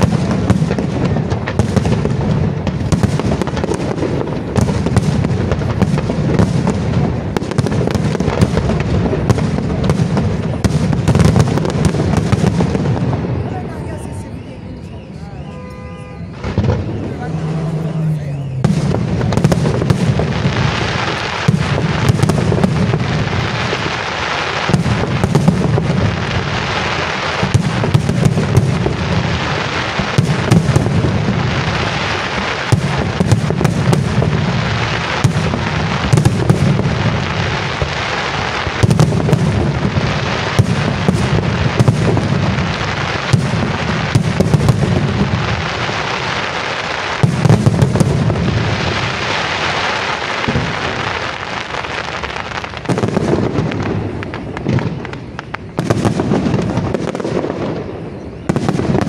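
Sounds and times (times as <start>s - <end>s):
fireworks rumble and crackle: 0.0s - 59.0s.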